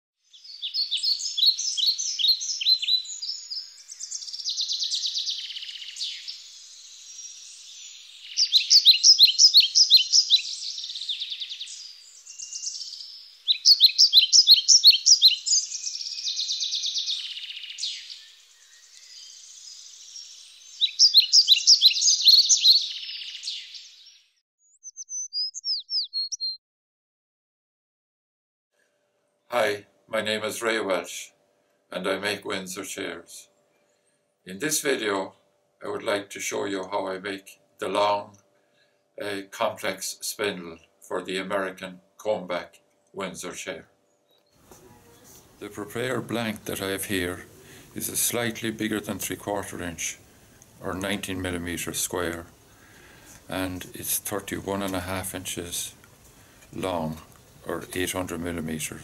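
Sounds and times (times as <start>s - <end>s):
short high bird calls: 0.3s - 26.6s
songbird singing high notes: 0.3s - 26.6s.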